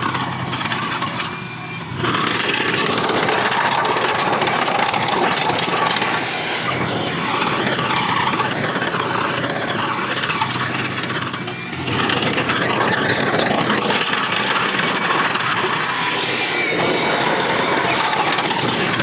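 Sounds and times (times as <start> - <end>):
heavy machinery engine running: 0.0 - 19.0.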